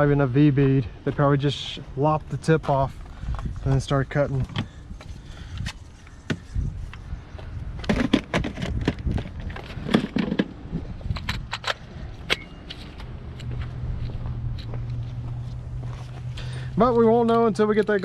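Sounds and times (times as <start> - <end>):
tools clicking and rattling: 11.1 - 13.5.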